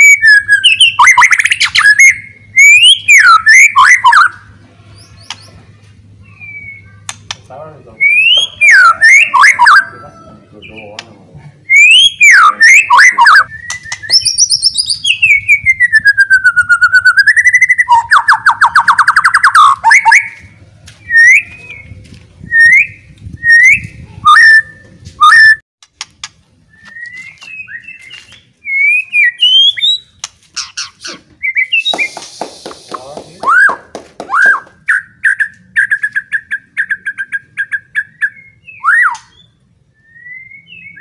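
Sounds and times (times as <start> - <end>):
bird singing whistled phrases: 0.0 - 4.4, 6.2 - 7.0, 8.0 - 9.9, 11.7 - 20.4, 21.0 - 25.6, 26.7 - 32.3, 34.4 - 41.0.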